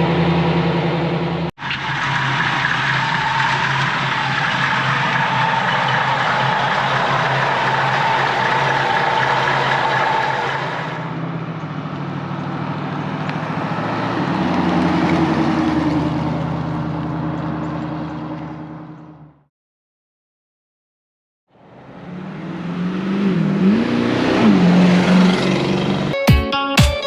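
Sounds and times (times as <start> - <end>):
car engine idling: 0.0 - 14.1, 14.9 - 19.4.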